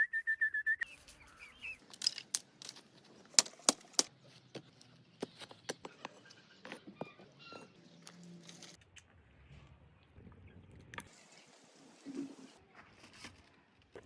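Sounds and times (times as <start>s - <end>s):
high chirping: 0.0s - 1.8s.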